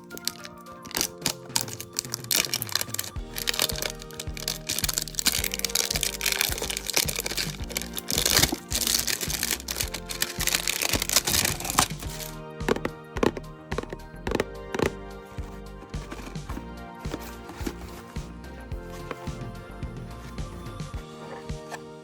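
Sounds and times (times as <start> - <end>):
plastic packaging crinkling: 0.0 - 15.1
background music: 0.0 - 22.0.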